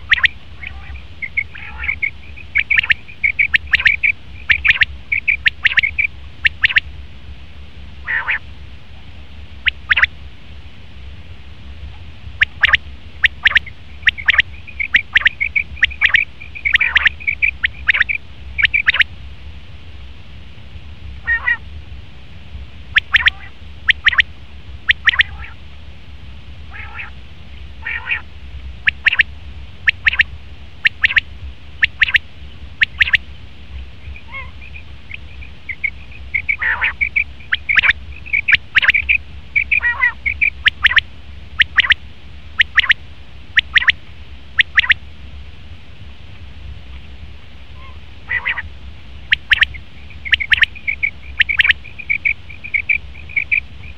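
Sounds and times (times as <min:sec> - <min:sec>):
quail calling: 0:00.0 - 0:06.8, 0:08.0 - 0:08.5, 0:09.6 - 0:10.1, 0:12.4 - 0:19.1, 0:21.2 - 0:21.6, 0:23.0 - 0:24.2, 0:24.9 - 0:25.6, 0:26.7 - 0:27.2, 0:27.8 - 0:31.2, 0:31.8 - 0:32.2, 0:32.8 - 0:33.2, 0:34.0 - 0:41.0, 0:41.6 - 0:42.0, 0:42.6 - 0:43.0, 0:43.6 - 0:44.0, 0:44.6 - 0:45.0, 0:47.8 - 0:48.7, 0:49.3 - 0:53.9.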